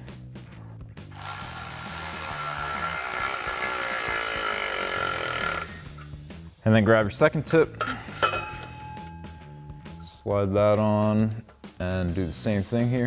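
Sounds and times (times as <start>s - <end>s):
power tool whirring: 1.1s - 6.0s
thin high tone: 7.9s - 10.6s.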